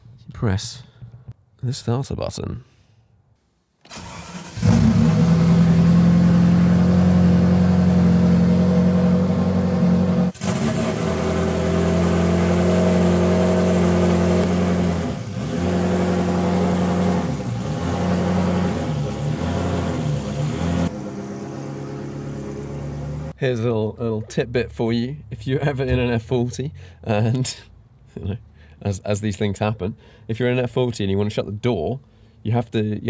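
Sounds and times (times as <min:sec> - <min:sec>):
car engine starting and idling: 0:03.8 - 0:23.4.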